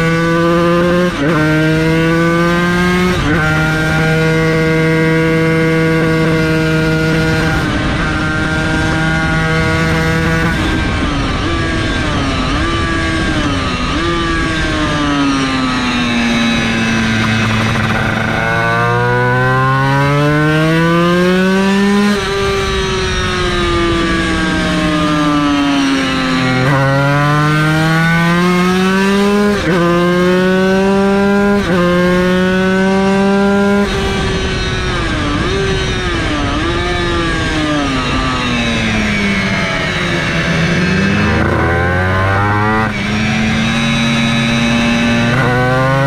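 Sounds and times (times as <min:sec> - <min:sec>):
two-stroke race engine revving: 0:00.0 - 0:46.0.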